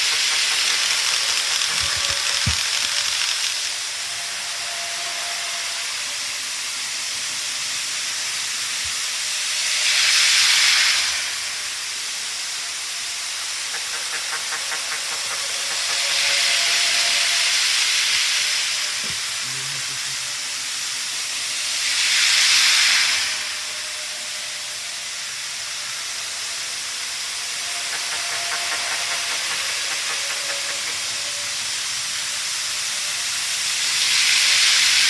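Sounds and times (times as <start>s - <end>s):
model train wheels rattling on rails: 0.0s - 4.4s, 10.2s - 19.2s, 25.2s - 35.0s.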